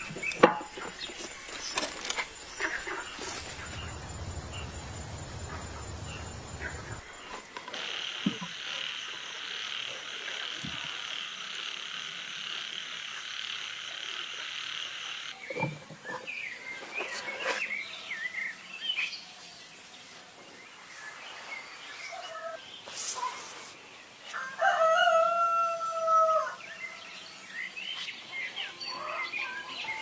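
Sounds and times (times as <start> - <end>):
high buzzing animal chorus: 0.0 - 15.4.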